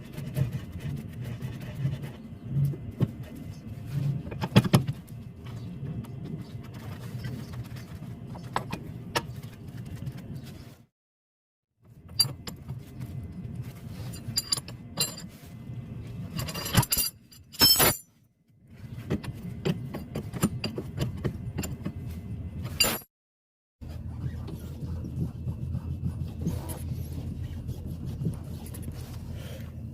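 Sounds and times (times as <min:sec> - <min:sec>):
metal tools clinking: 0:14.0 - 0:15.3, 0:16.3 - 0:18.1
low steady rumble: 0:23.8 - 0:29.9.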